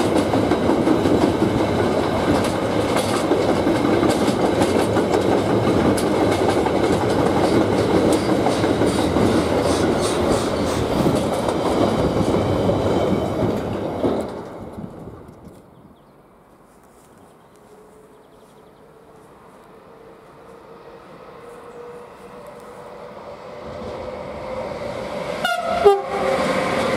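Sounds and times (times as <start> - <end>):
train wheels rumbling on rails: 0.0 - 15.8, 18.8 - 26.9
wheels clicking over rail joints: 0.0 - 15.8.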